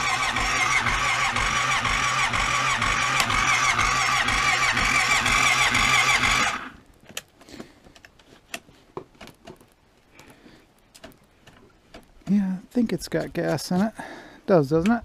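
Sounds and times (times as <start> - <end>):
electric starter cranking engine: 0.0 - 6.8.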